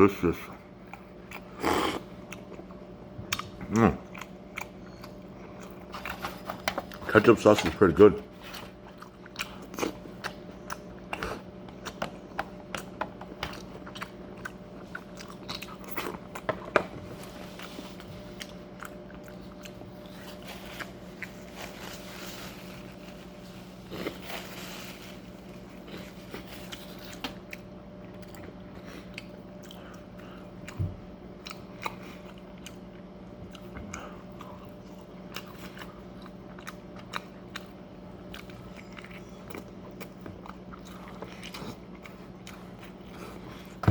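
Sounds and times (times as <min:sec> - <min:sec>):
steady low hum: 0:00.0 - 0:43.9
chewing and biting food: 0:00.8 - 0:24.6, 0:25.2 - 0:43.9.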